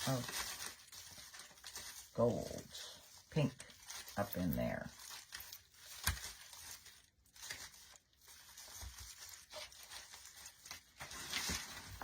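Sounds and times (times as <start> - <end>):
artificial pine branches rustling: 0.0 - 12.0.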